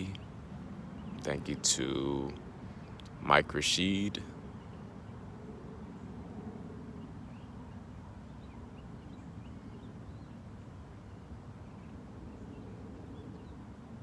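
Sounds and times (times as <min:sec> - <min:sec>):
low outdoor rumble: 0:00.0 - 0:04.6.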